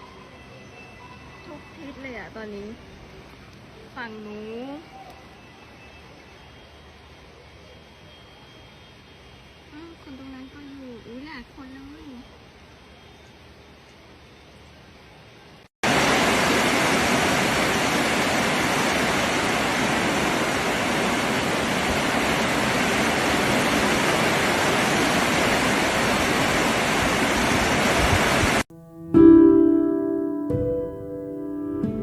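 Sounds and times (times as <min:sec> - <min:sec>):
floodwater rushing: 0:15.8 - 0:28.6.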